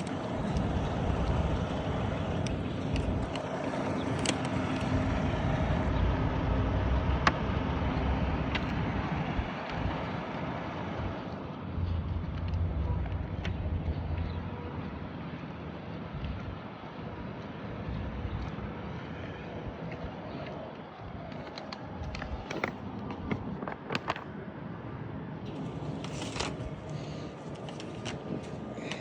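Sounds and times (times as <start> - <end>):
truck engine running: 0.0 - 22.6
road rumble: 0.0 - 29.0.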